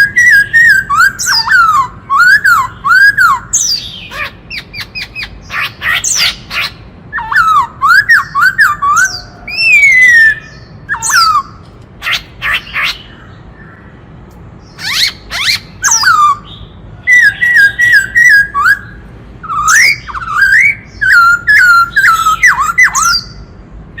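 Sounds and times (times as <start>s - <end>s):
bird singing whistled song: 0.0s - 13.8s, 14.7s - 23.5s.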